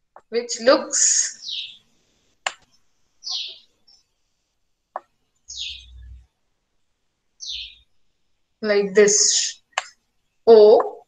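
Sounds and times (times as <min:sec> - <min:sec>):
bird chirping: 0:00.5 - 0:04.3, 0:05.0 - 0:06.3, 0:07.4 - 0:11.0
sharp clicks: 0:02.4 - 0:03.5.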